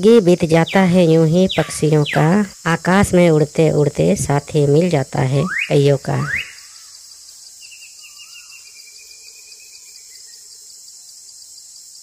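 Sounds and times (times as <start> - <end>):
faint bird calls: 0.5 - 3.1, 5.4 - 10.6.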